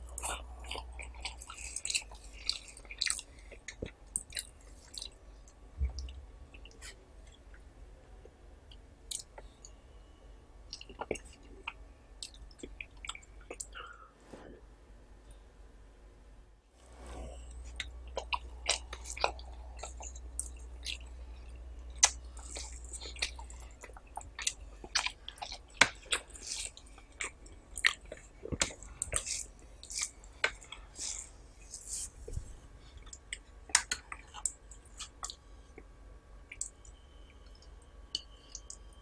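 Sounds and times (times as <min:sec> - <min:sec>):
close-miked chewing: 0:00.0 - 0:05.2, 0:17.4 - 0:35.4
low hum: 0:03.4 - 0:25.3.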